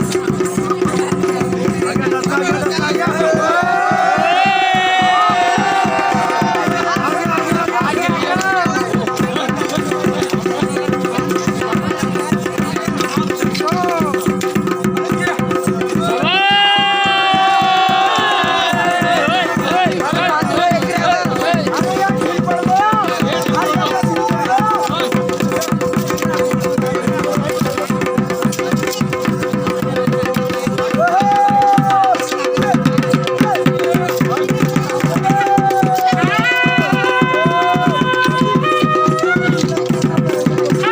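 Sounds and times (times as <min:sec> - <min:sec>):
fast dense drumming: 0:00.0 - 0:40.9
wind instrument melody: 0:35.2 - 0:40.9.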